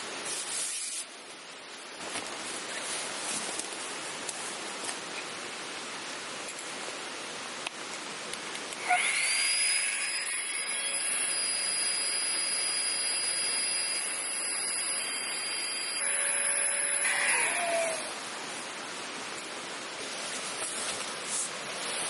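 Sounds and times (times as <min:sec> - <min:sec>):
electric air pump whining: 0:08.8 - 0:18.2.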